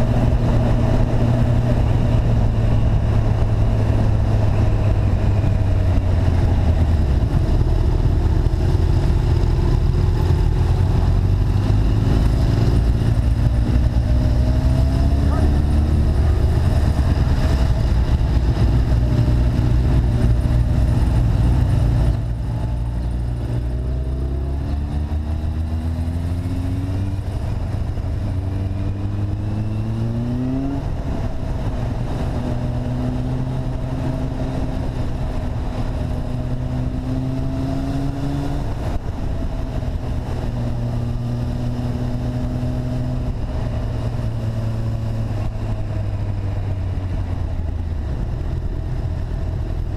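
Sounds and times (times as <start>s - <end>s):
vehicle engine accelerating: 0.0s - 49.9s
wind noise: 0.0s - 49.9s.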